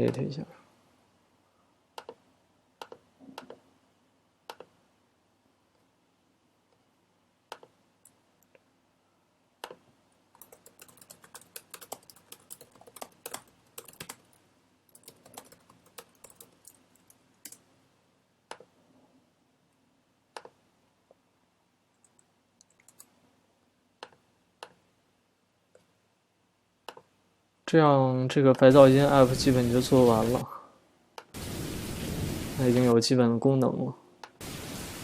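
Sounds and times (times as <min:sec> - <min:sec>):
typing on a computer keyboard: 0:10.4 - 0:17.6, 0:22.0 - 0:23.1.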